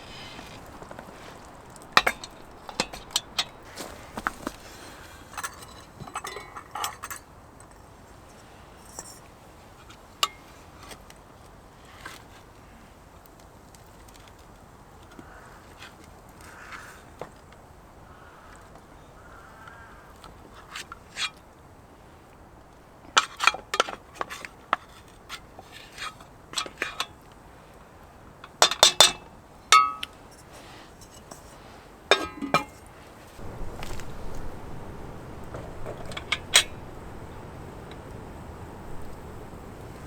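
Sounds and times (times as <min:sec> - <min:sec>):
cookware clinking and knocking: 0:29.8 - 0:30.1, 0:32.2 - 0:32.8.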